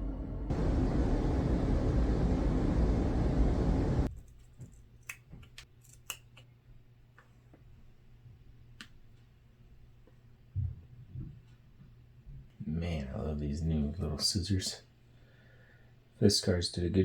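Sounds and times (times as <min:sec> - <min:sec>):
loud rushing noise: 0:00.5 - 0:04.1
scissors snipping duct tape: 0:05.0 - 0:06.4.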